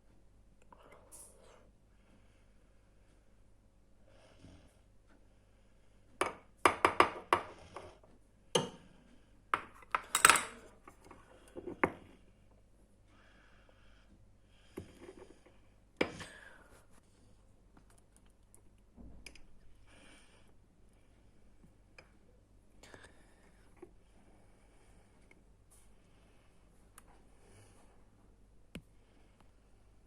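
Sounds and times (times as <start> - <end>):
utensils and dishes clinking: 9.9 - 10.7.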